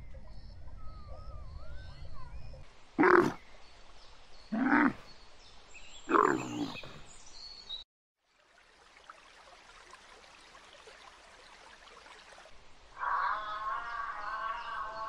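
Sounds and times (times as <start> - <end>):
camel groaning call: 3.0 - 3.4, 4.5 - 5.0, 6.1 - 7.0, 13.0 - 15.0.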